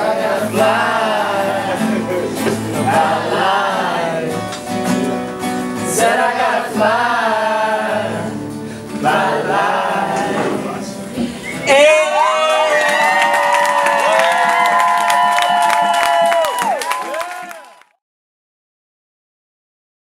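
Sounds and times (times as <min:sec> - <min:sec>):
musical accompaniment: 0:00.0 - 0:12.2
person singing soul: 0:00.0 - 0:13.0.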